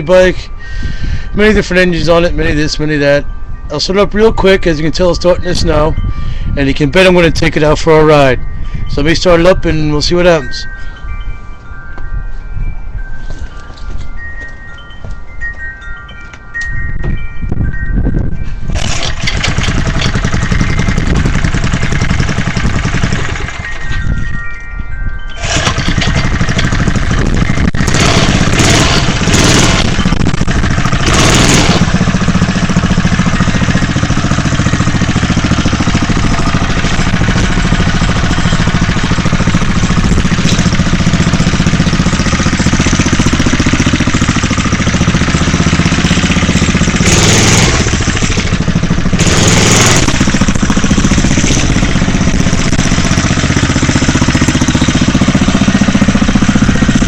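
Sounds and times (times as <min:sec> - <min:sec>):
small engine running: 0:18.7 - 0:24.2, 0:25.2 - 0:57.0.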